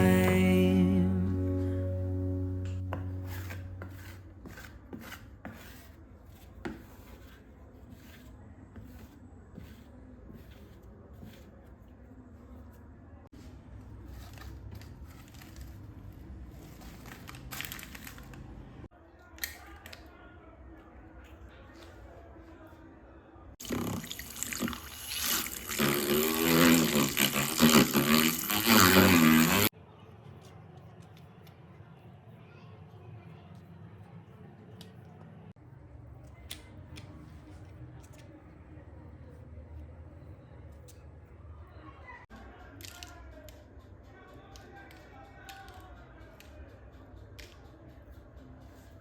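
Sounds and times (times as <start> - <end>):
rubbing and scraping on a surface: 3.2 - 17.2.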